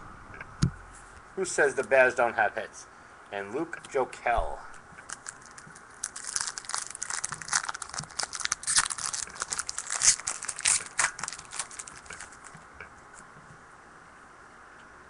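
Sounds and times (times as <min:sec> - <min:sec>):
cards rustling and flicking: 0:05.0 - 0:12.6.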